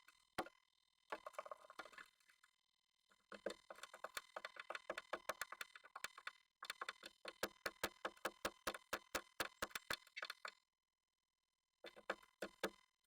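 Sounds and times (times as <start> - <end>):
bird pecking on wood: 3.4 - 10.5.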